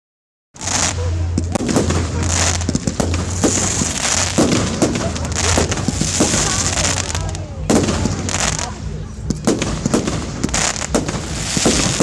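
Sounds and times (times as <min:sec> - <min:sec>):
fireworks bangs and crackling: 0:00.6 - 0:12.0.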